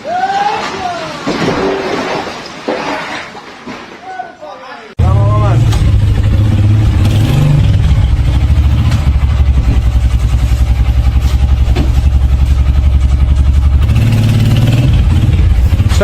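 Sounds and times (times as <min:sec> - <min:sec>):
motor engine running: 0:05.0 - 0:16.0.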